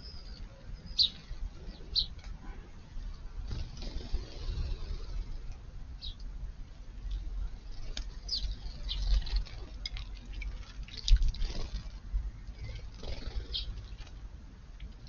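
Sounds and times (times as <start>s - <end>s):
sparrows chirping: 0.0s - 2.3s, 2.9s - 6.2s, 7.0s - 14.2s
water dripping and pattering: 7.9s - 14.0s.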